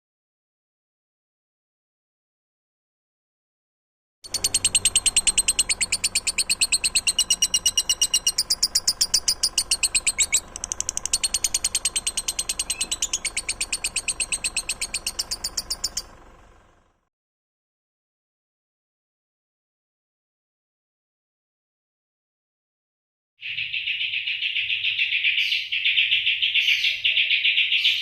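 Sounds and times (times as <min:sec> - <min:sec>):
cage bird chattering song: 0:04.3 - 0:16.2, 0:23.4 - 0:28.0.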